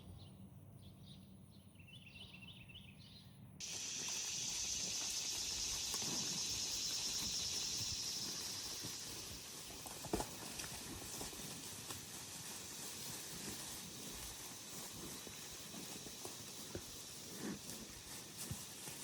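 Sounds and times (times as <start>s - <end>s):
cattle hoof thuds and clicks: 3.9s - 12.1s, 13.0s - 19.0s.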